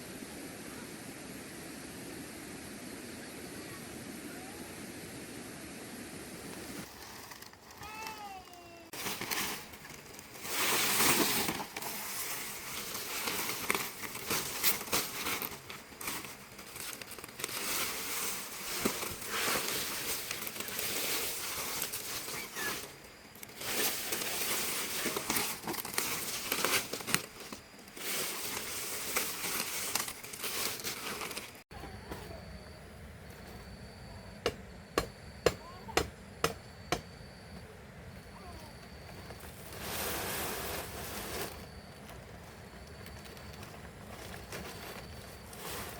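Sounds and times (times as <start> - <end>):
palm leaves rustling: 6.5 - 32.5, 38.2 - 45.9.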